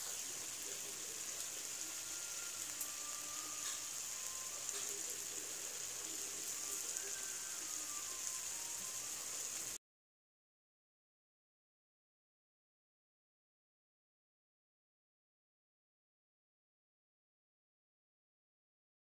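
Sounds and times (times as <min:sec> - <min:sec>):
chicken frying in oil: 0:00.0 - 0:09.8.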